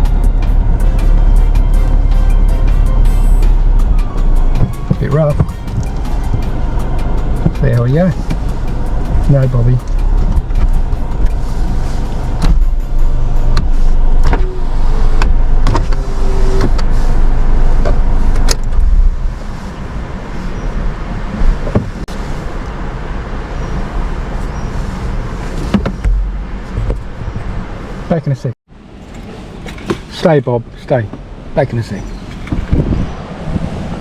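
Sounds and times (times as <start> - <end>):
car cabin low rumble: 0.0 - 22.8.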